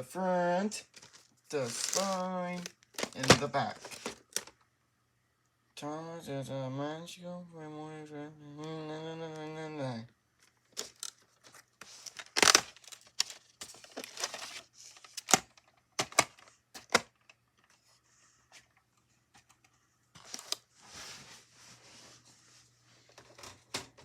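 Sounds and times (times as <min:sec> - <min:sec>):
faint steady hum: 0:00.0 - 0:24.0
plastic rustling: 0:00.8 - 0:04.6, 0:10.4 - 0:17.8, 0:20.2 - 0:21.9
plastic case clicks: 0:01.0 - 0:04.5, 0:12.2 - 0:13.3, 0:15.2 - 0:17.3.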